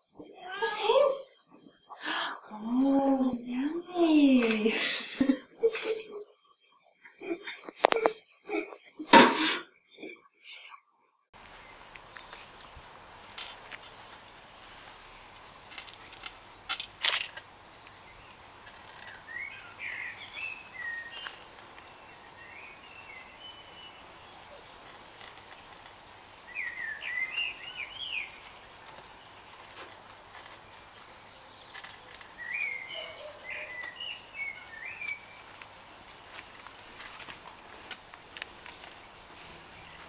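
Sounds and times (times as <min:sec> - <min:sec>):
songbird warbling: 0:17.6 - 0:29.2, 0:30.2 - 0:35.5.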